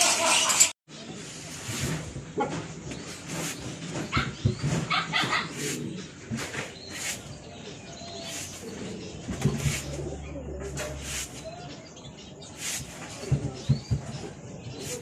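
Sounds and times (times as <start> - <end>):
dogs yipping and whimpering: 4.1 - 5.9.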